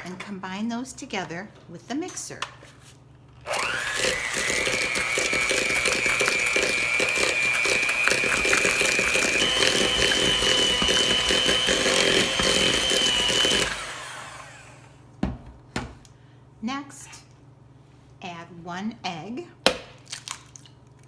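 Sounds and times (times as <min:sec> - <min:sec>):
electric mixer whining: 0:03.5 - 0:15.0.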